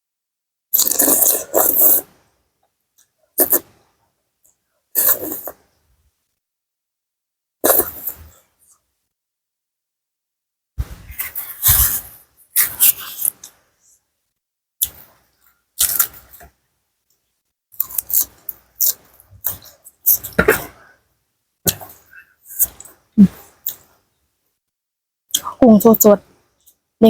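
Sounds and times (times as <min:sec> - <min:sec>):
wet chewing and crunching: 0:00.8 - 0:02.0, 0:15.8 - 0:16.5, 0:17.8 - 0:20.4.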